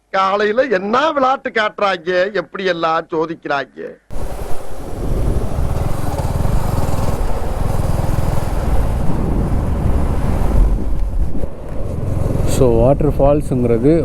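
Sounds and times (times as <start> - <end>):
vehicle engine running: 4.1 - 13.0
road and wind noise: 4.1 - 14.0.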